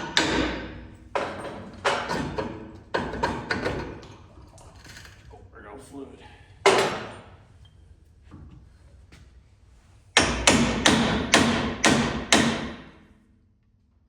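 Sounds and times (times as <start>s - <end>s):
hammer striking steel: 10.2s - 13.0s.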